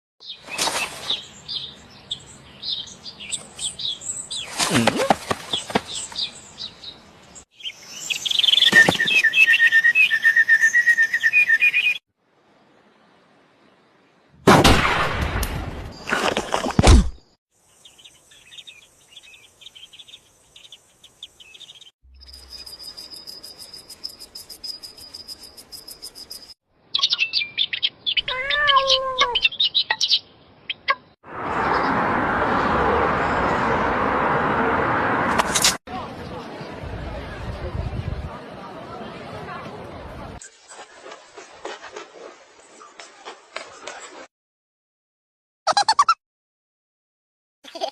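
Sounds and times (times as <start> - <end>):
small bird chirping: 1.1 - 4.5, 17.6 - 31.9
high chirping trill: 22.1 - 30.9
cat meow: 28.2 - 29.4.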